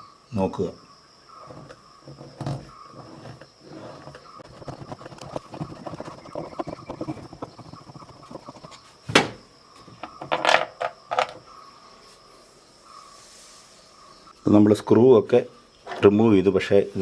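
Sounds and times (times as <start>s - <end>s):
sharp knock: 9.1s - 9.4s.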